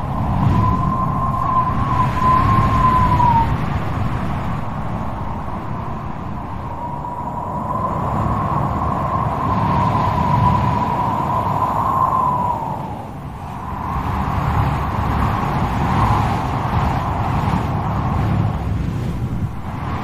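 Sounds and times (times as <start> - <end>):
wind howling: 0.0 - 20.0.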